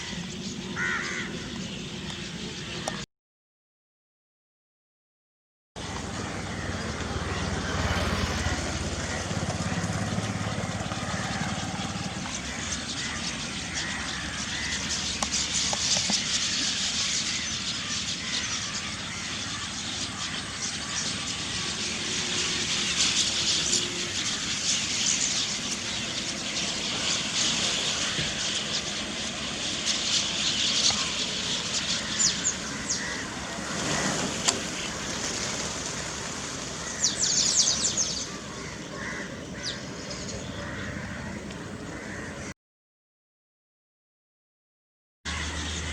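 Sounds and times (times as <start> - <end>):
starlings chattering: 5.8 - 42.4
distant traffic rumble: 5.8 - 42.5, 45.3 - 45.9.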